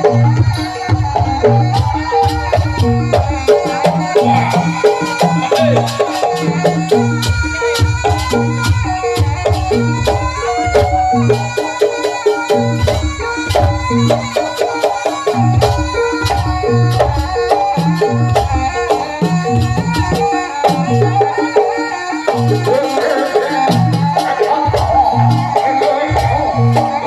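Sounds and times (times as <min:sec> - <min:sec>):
drums beating: 0:00.0 - 0:27.0
sharp percussion strokes: 0:00.0 - 0:27.0
sustained pitched instruments: 0:00.0 - 0:27.0.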